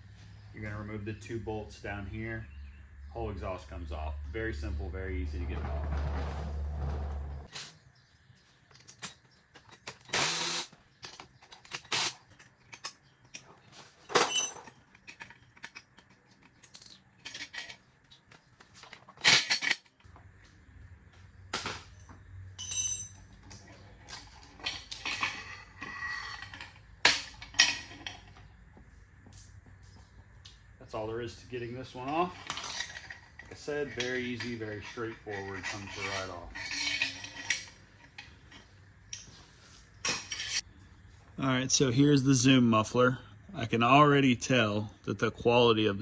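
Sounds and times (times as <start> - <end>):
metal hand tools clinking: 11.4 - 17.8, 22.6 - 28.4, 31.9 - 39.3.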